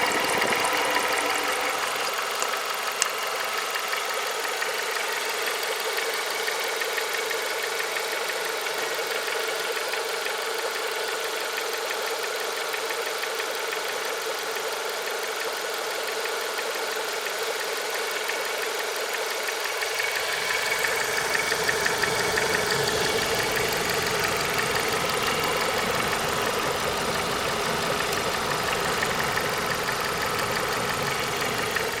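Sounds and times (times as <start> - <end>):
car engine idling: 0.0 - 32.0
fast chirring tick: 19.8 - 32.0.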